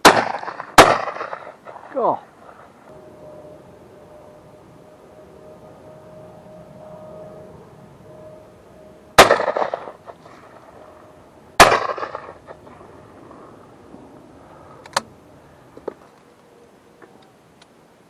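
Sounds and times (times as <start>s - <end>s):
shotgun shots with echo: 0.0s - 1.8s, 9.2s - 9.9s, 11.6s - 12.4s.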